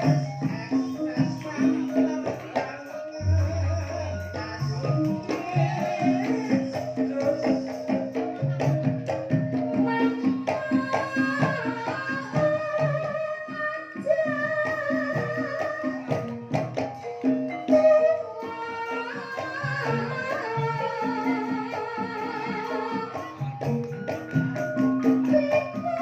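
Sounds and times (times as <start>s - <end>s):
drum strokes: 0.0s - 13.2s
ringing metallophone notes: 0.0s - 26.0s.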